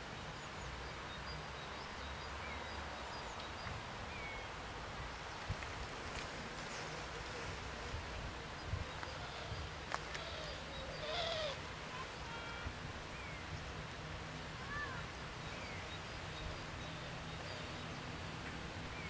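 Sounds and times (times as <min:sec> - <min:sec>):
bird calls: 0:08.6 - 0:13.8.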